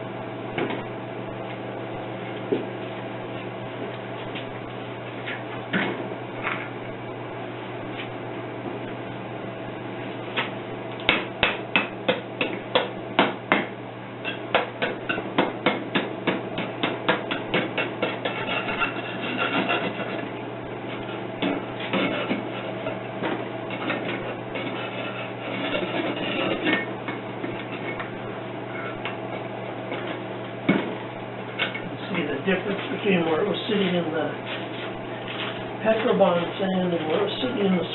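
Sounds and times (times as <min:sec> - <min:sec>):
scraping and rubbing: 0:18.0 - 0:20.2, 0:21.8 - 0:23.0, 0:23.7 - 0:26.9.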